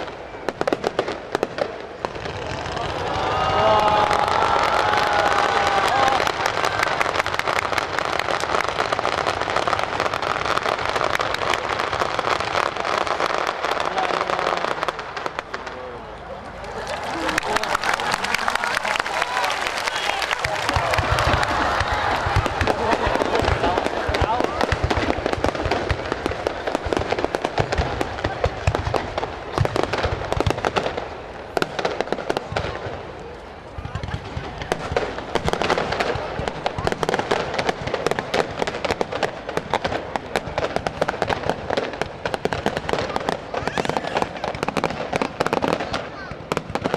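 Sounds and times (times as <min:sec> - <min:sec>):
fireworks crackling and popping: 0:00.0 - 0:46.9.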